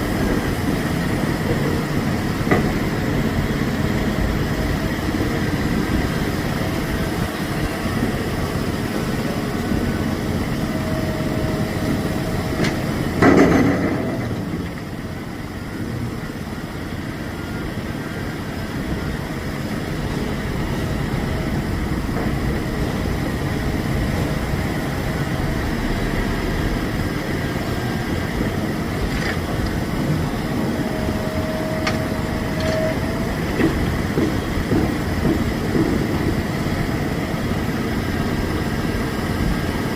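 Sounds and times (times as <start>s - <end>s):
diesel truck engines running: 0.0s - 39.9s.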